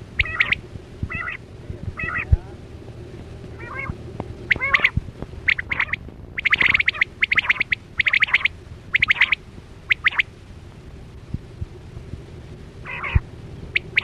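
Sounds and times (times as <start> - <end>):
quail calling: 0.1 - 2.4, 3.5 - 10.3, 12.8 - 14.0.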